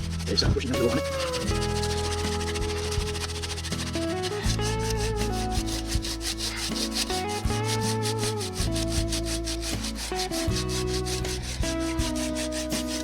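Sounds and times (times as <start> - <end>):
background music: 0.0 - 13.0
hand saw rasping through wood: 0.0 - 13.0.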